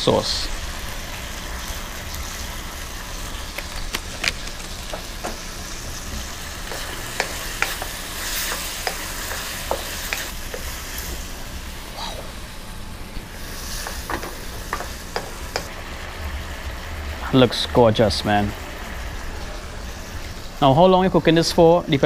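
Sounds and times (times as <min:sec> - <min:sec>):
vegetables sizzling in a wok: 0:00.0 - 0:22.0
sharp pops and crackles: 0:03.4 - 0:05.4
wooden spoon stirring pan: 0:04.2 - 0:11.3, 0:13.4 - 0:15.7.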